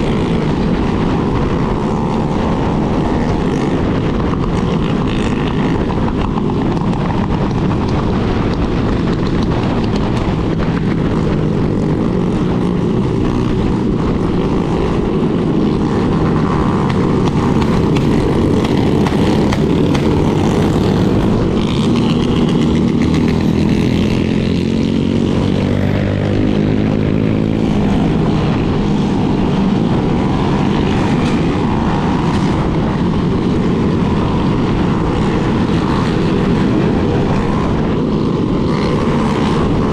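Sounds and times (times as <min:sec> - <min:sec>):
group of motorcycle engines: 0:00.0 - 0:39.9.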